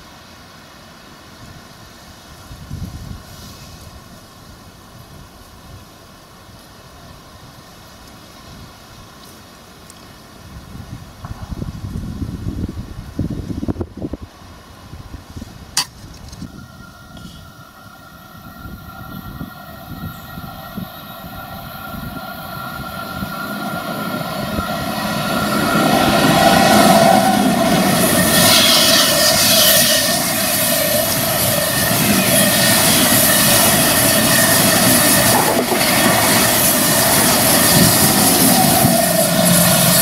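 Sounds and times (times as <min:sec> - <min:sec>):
electric train rushing rumble: 0:16.4 - 0:40.0
steady whining tone: 0:16.4 - 0:40.0.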